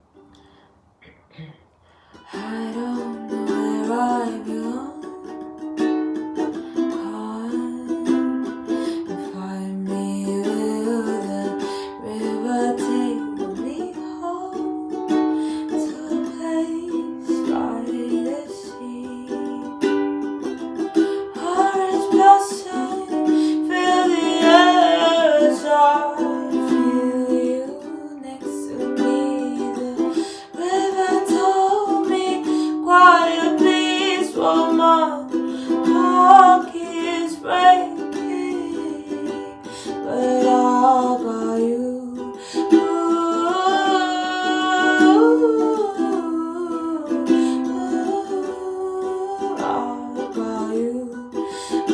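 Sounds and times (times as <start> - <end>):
person singing: 2.1 - 51.9
ukulele playing: 2.2 - 51.9.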